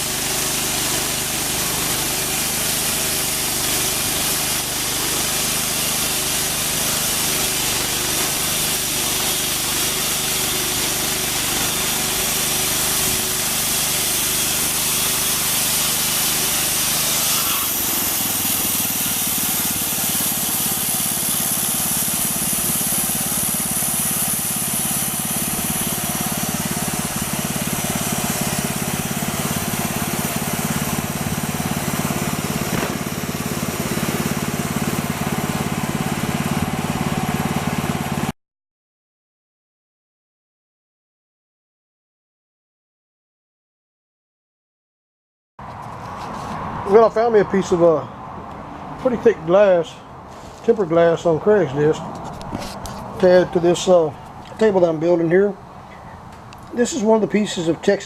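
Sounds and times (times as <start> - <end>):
saw blade cutting wood: 0.0 - 38.3, 49.0 - 55.6
sawmill engine running: 0.0 - 38.3, 45.6 - 58.0.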